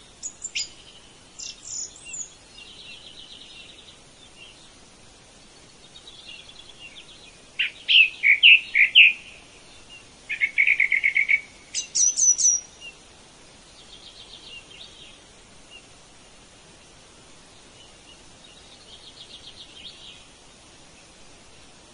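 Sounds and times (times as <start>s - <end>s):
birds singing: 0.0s - 16.0s, 17.3s - 21.2s
faint background hiss: 0.0s - 21.9s.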